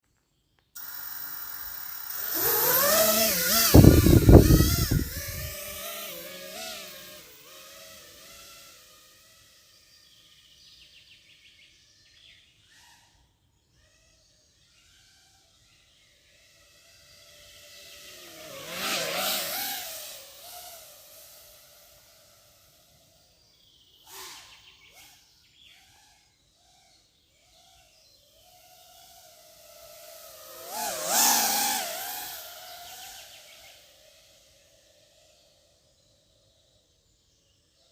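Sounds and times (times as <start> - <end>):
drone motors whining: 0.8 - 10.2
quadcopter motors whining: 0.8 - 11.2, 13.7 - 23.4, 24.2 - 36.6.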